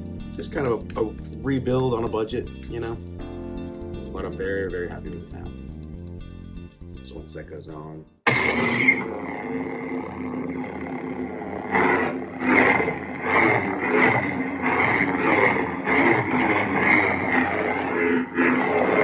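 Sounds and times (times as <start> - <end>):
lightsaber hum swinging: 8.3 - 19.0.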